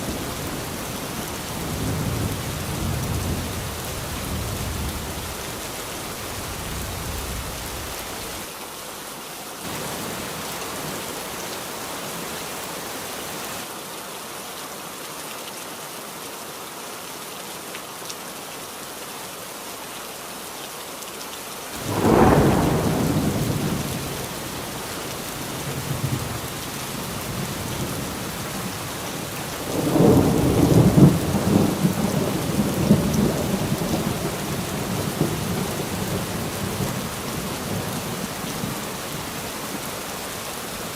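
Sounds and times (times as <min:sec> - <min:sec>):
thunder clap and rumble: 0:00.0 - 0:08.3, 0:21.8 - 0:38.8
steady rain falling: 0:00.0 - 0:40.9.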